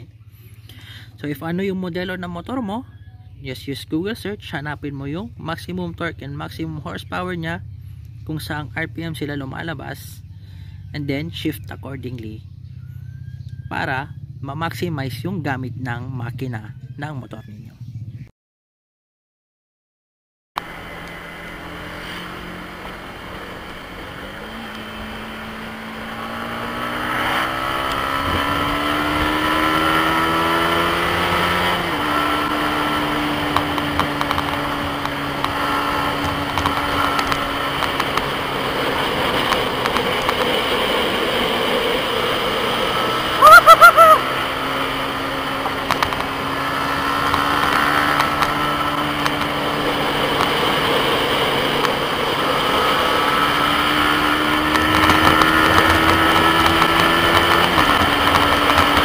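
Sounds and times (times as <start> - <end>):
motorcycle engine accelerating: 20.6 - 59.0.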